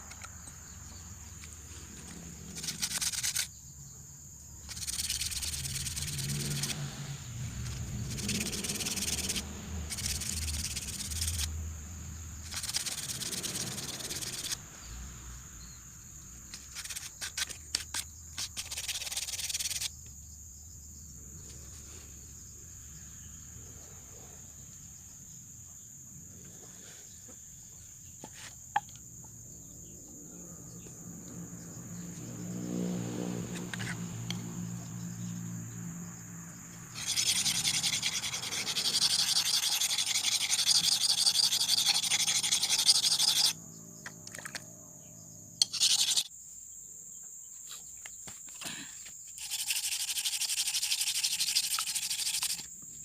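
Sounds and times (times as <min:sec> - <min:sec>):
knife blade scraping on abrasive: 0:02.0 - 0:03.5, 0:04.7 - 0:06.8, 0:07.6 - 0:11.5, 0:12.4 - 0:14.6, 0:16.5 - 0:19.9, 0:37.0 - 0:43.6, 0:45.6 - 0:46.3, 0:49.4 - 0:52.7
motor hum: 0:04.6 - 0:11.5, 0:36.9 - 0:44.5.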